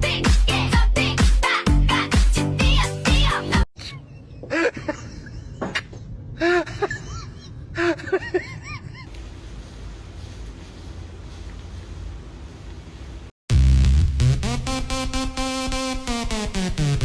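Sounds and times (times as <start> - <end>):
music: 0.0 - 3.7, 13.5 - 17.0.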